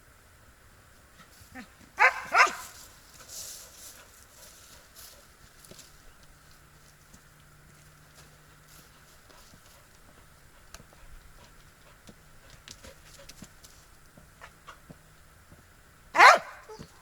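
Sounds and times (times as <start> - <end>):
footsteps on forest floor: 2.0 - 14.3.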